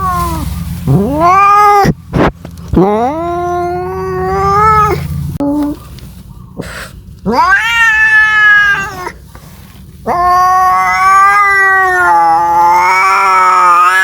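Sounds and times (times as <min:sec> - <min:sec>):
cat yowling: 0:00.0 - 0:02.0, 0:02.8 - 0:05.8, 0:07.3 - 0:09.2, 0:10.0 - 0:14.0.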